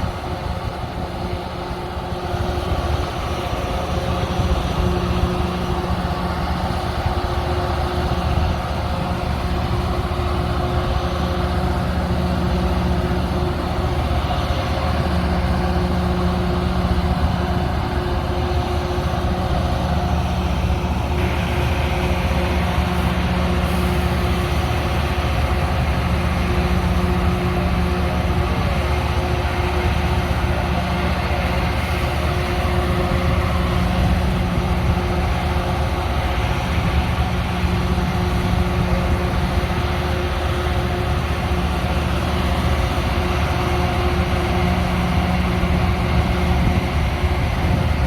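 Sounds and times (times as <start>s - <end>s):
diesel engines idling: 0.0s - 48.0s.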